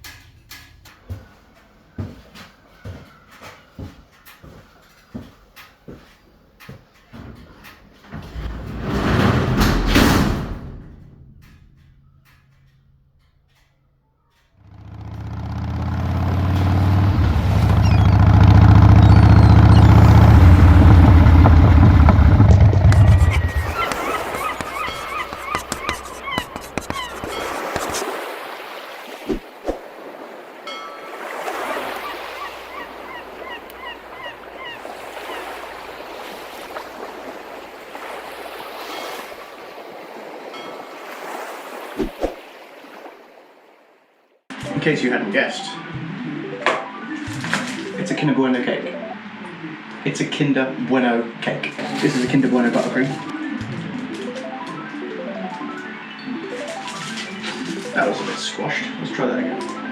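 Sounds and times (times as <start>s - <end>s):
bird calling: 1.0s - 8.5s, 13.8s - 43.0s, 45.3s - 59.9s
steady rushing noise: 8.1s - 11.8s, 17.0s - 28.2s
motorcycle engine running: 14.6s - 28.0s.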